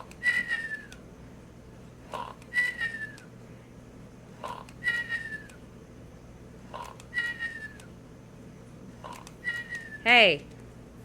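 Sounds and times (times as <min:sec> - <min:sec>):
toy parrot snoring: 0:02.1 - 0:02.4, 0:04.4 - 0:04.8, 0:06.7 - 0:07.4, 0:09.0 - 0:09.3.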